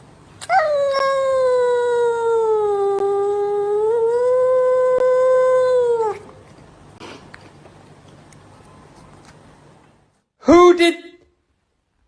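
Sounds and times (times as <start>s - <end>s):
dog howling: 0.4s - 6.4s.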